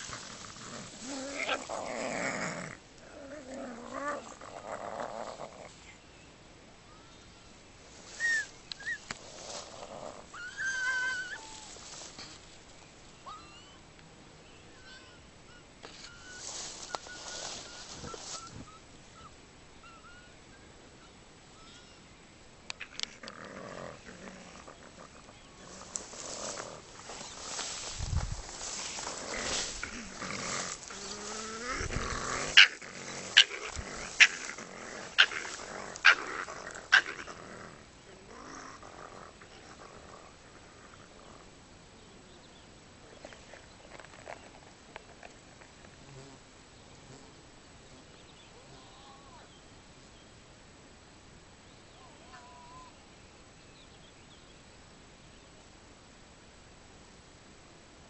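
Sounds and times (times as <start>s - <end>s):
raccoon dogs whining: 8.2s - 11.8s, 14.8s - 20.4s, 28.6s - 37.6s
animal hissing: 23.5s - 37.8s.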